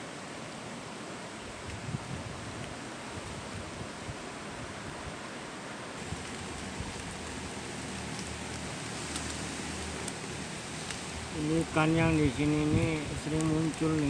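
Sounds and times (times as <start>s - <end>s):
heavy rain falling: 5.7s - 14.0s
raindrop ticks: 6.0s - 14.0s.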